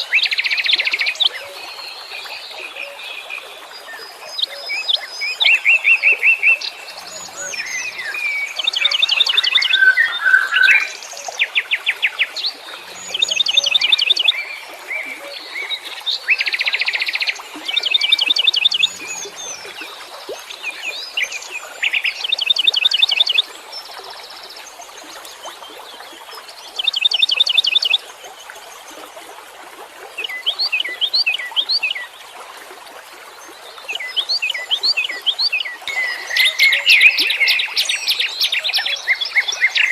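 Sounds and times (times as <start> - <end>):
songbirds singing: 0.2 - 25.0, 33.9 - 39.9
bird chirps: 35.9 - 39.9.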